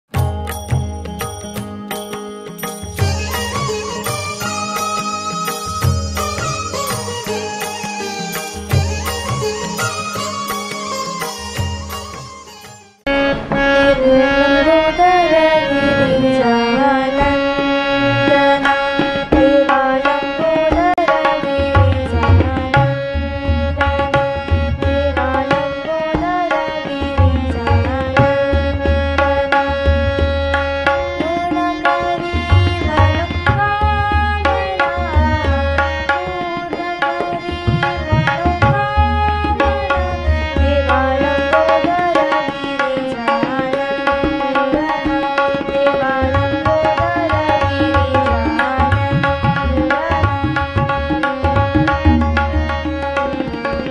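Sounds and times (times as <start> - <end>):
tabla playing: 0.1 - 53.9
devotional song melody over drone: 13.1 - 19.9.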